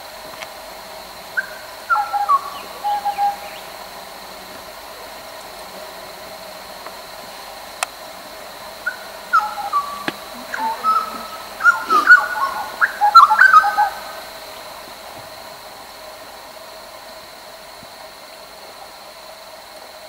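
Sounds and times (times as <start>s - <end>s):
bird whistling calls: 1.4s - 3.6s, 8.9s - 14.2s
high-pitched background drone: 8.2s - 14.8s.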